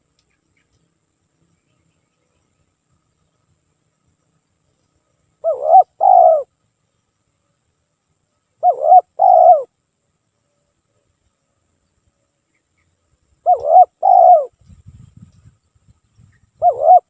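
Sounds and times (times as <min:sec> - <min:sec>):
dove cooing: 0:05.4 - 0:06.5, 0:08.6 - 0:09.7, 0:13.4 - 0:14.6, 0:16.6 - 0:17.0.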